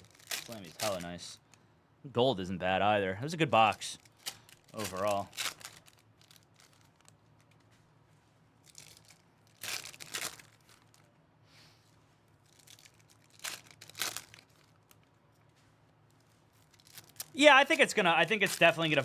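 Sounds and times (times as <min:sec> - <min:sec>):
foil wrappers tearing and crinkling: 0:00.0 - 0:01.4, 0:03.6 - 0:07.6, 0:08.6 - 0:11.1, 0:12.4 - 0:15.1, 0:16.6 - 0:19.0.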